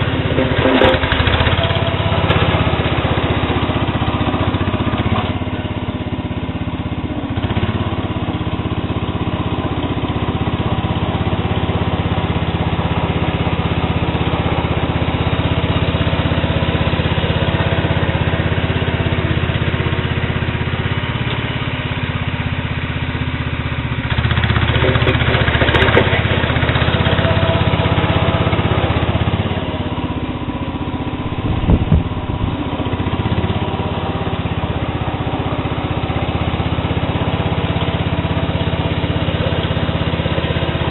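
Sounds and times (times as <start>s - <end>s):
garden tractor engine running: 0.0s - 40.9s
short low knocks: 31.2s - 32.6s.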